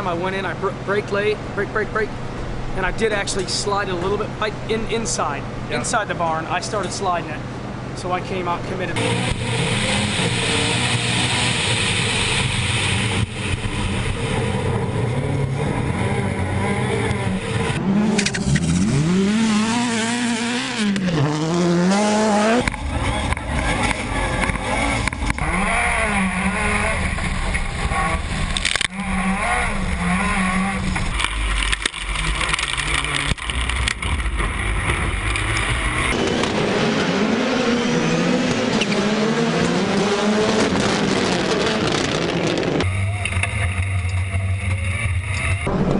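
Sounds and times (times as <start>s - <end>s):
race car engines revving: 0.0s - 45.9s.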